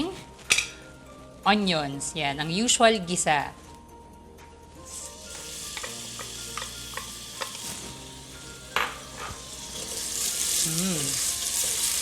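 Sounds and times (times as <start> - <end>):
onions sizzling in oil: 4.9 - 12.0.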